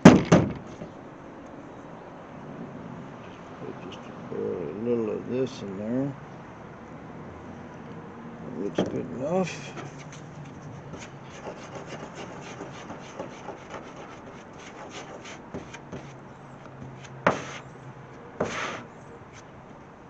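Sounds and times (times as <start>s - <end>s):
plastic spreader scraping metal: 18.4s - 18.9s.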